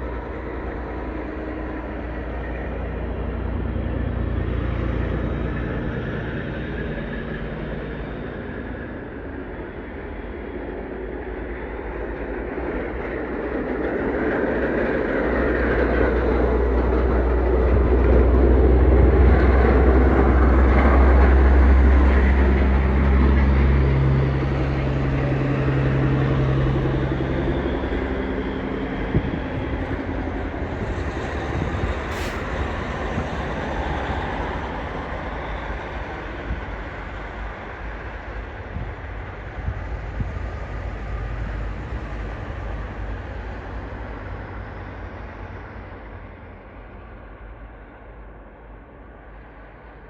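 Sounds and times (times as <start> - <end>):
truck diesel engine hum: 17.3 - 35.3.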